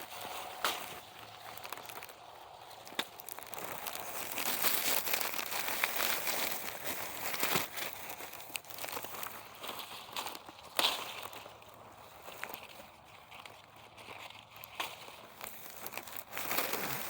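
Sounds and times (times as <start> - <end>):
bag crinkling and rustling: 0.0 - 17.0
small snaps and knocks: 2.8 - 4.0.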